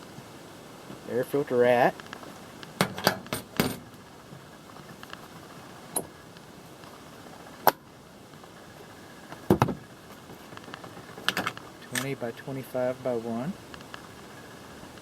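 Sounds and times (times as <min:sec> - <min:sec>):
faint steady hiss: 0:00.0 - 0:15.0
clicks and knocks of air filter: 0:02.0 - 0:03.9, 0:09.4 - 0:09.8.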